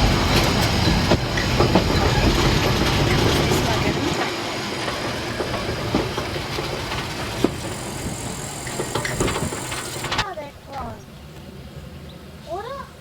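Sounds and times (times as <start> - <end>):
train rumbling on track: 0.0 - 10.2.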